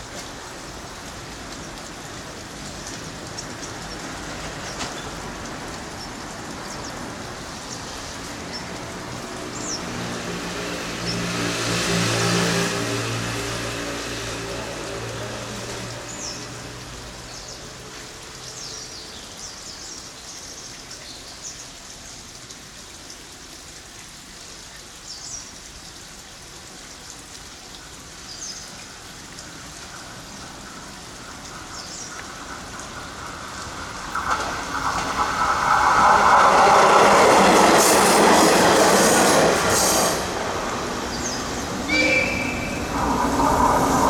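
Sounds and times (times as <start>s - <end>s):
train passing: 0.0s - 17.3s, 29.6s - 44.0s.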